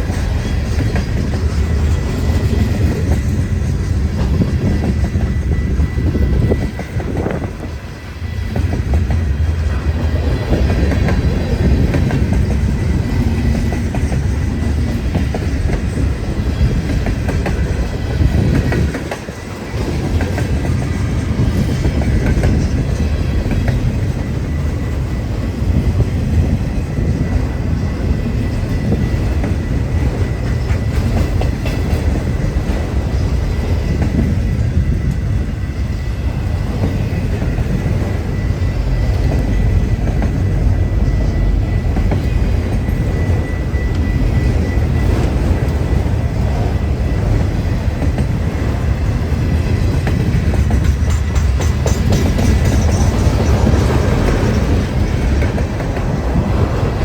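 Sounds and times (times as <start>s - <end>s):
freight train rolling by: 0.0s - 57.0s
wheels clicking over rail joints: 8.5s - 25.0s, 36.5s - 57.0s.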